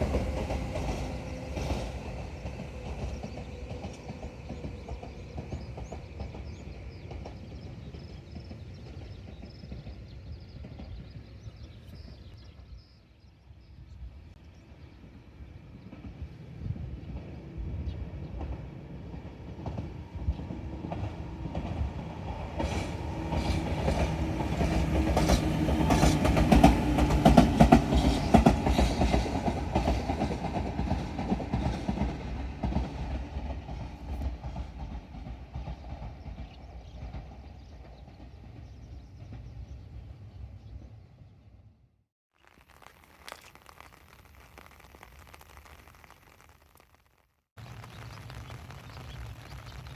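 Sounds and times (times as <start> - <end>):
electric train rumbling past: 0.0 - 12.2, 14.6 - 41.7.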